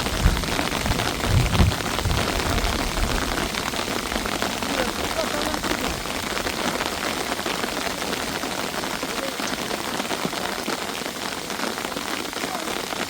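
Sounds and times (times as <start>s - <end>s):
heavy rain pattering: 0.0s - 13.0s.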